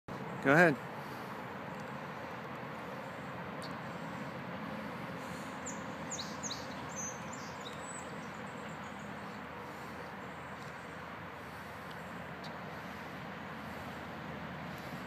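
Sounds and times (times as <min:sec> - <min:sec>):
outdoor background hiss: 0:00.1 - 0:15.0
small bird chirping: 0:05.6 - 0:09.4.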